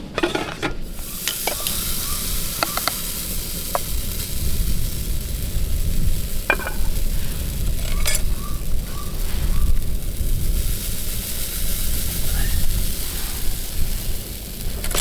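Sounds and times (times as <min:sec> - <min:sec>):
utensil scraping a pan: 0:00.0 - 0:04.0, 0:06.5 - 0:09.8, 0:12.9 - 0:15.0
pancakes sizzling in a frying pan: 0:00.8 - 0:15.0.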